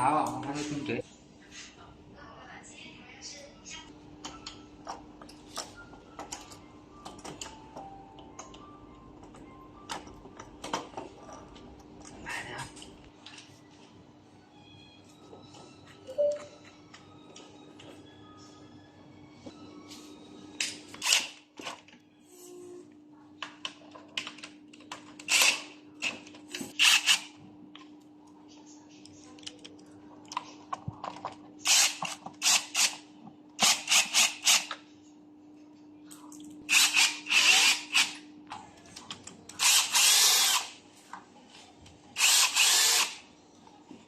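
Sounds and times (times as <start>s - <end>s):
tools clicking and tapping: 4.2s - 12.1s.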